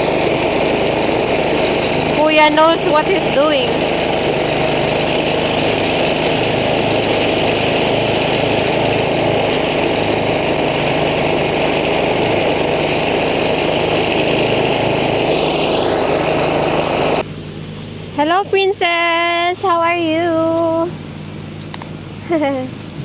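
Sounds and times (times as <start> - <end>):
rice thresher and engine running: 0.0 - 23.0.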